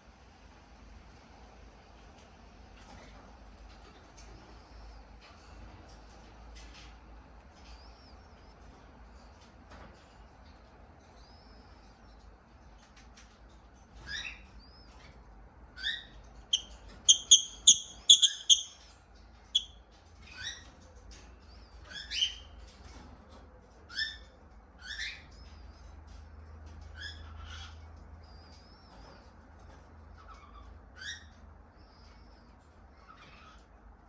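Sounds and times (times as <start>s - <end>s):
lovebird chirping: 16.5s - 18.8s.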